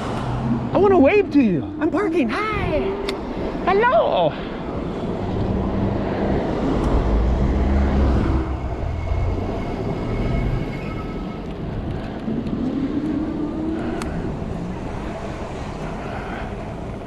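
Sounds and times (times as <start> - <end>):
vehicle passing with low rumble: 0.0 - 17.0
vehicle pulling away whine: 4.4 - 17.0.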